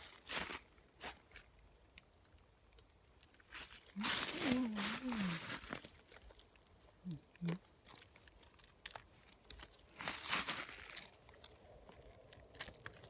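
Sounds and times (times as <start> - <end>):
crunching and crackling clicks: 1.9 - 13.0
low hum from a voice: 4.0 - 5.7.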